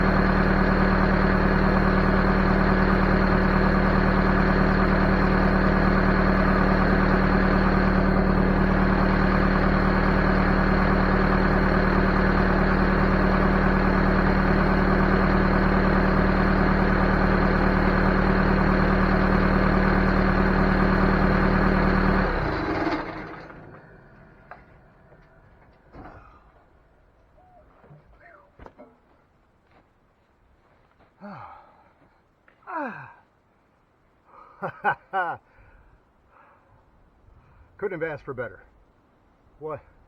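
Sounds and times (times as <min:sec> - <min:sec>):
diesel engine idling: 0:00.0 - 0:27.6.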